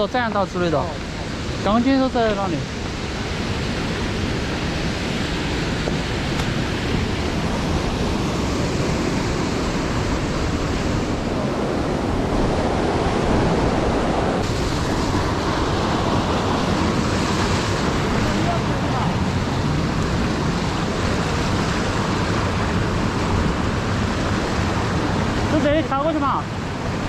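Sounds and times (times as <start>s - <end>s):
river rushing: 0.0s - 27.0s.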